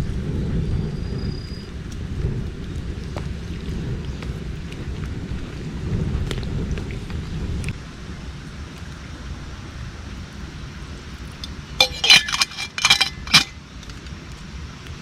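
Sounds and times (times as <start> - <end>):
cookware clinking and ringing: 11.8 - 13.6.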